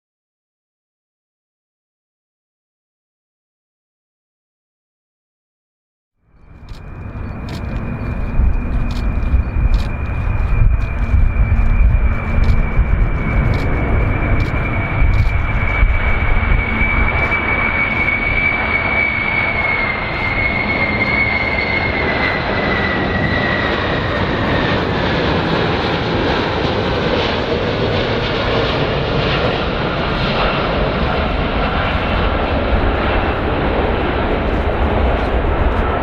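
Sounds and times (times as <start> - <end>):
airplane engines rushing: 6.2 - 36.0
high engine whine: 6.2 - 36.0.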